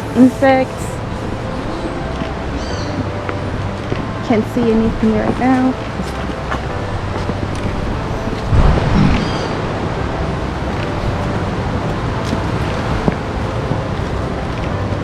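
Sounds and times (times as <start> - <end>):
ocean surf breaking: 7.6 - 15.0.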